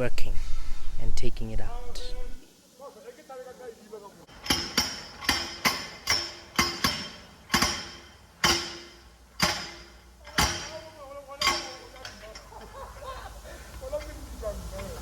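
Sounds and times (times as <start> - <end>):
hammer striking metal: 4.3 - 12.6.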